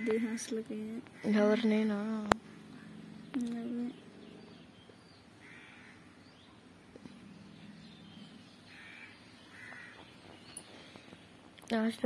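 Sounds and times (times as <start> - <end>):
bird harsh calls: 1.1 - 1.7, 2.4 - 11.4.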